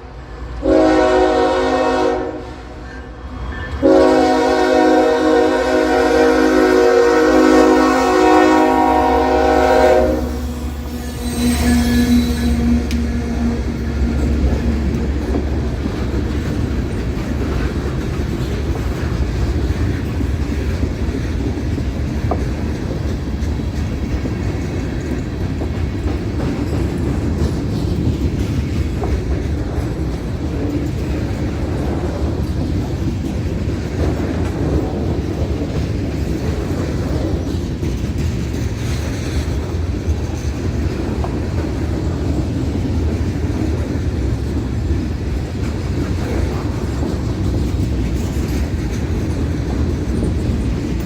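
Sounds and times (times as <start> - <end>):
train rumbling past: 0.0 - 51.0
locomotive air horn chord: 0.6 - 3.1, 3.8 - 15.0
wheels clacking over rails: 8.3 - 51.0.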